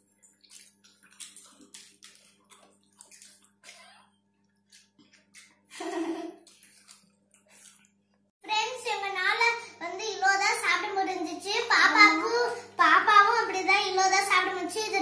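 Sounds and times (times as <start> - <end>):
children chewing food: 0.0 - 8.3.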